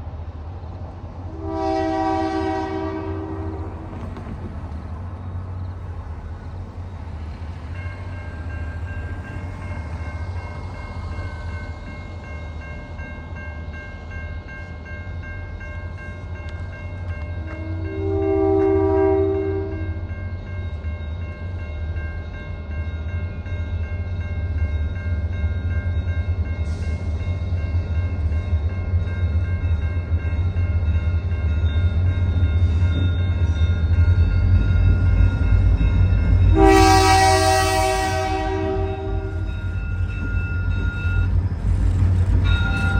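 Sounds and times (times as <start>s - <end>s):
diesel locomotive rumbling: 0.0s - 42.9s
locomotive horn blast: 1.3s - 3.9s, 17.4s - 20.0s, 36.5s - 39.5s.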